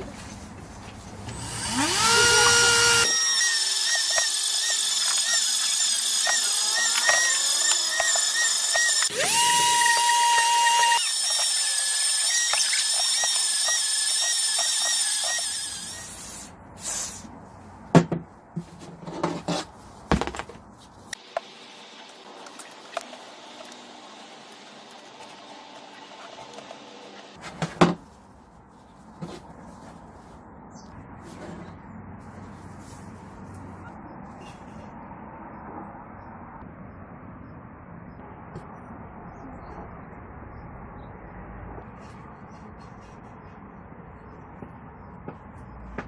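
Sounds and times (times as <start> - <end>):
electric drill whining: 1.3 - 16.2.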